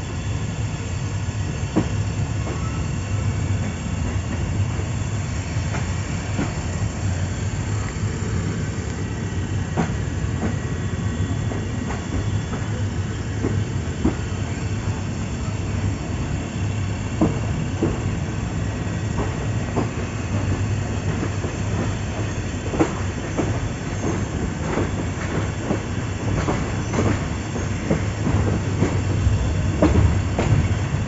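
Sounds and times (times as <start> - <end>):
train rumbling on rails: 0.0 - 31.0.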